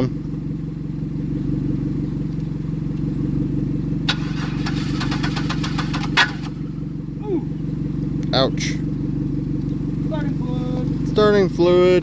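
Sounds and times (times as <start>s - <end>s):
engine hum: 0.0s - 12.0s
fast sharp clicks: 4.1s - 6.6s.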